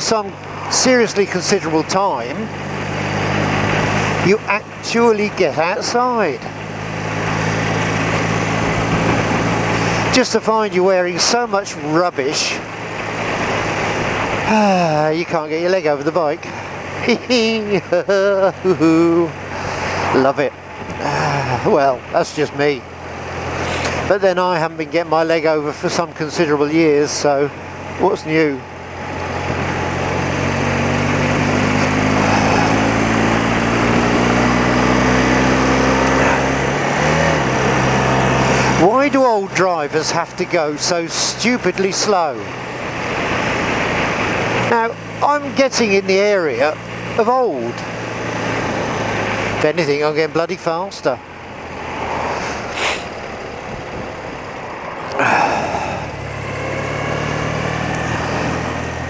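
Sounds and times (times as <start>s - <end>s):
rushing noise: 0.0s - 15.0s, 51.2s - 59.0s
motorcycle engine running: 0.0s - 59.0s
wind and road noise: 0.0s - 59.0s.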